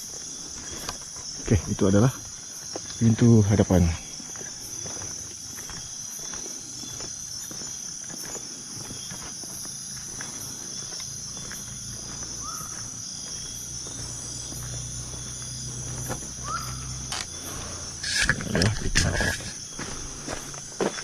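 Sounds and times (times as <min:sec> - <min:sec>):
insects chirring: 0:00.0 - 0:21.0
loud scuffing noise: 0:12.0 - 0:21.0.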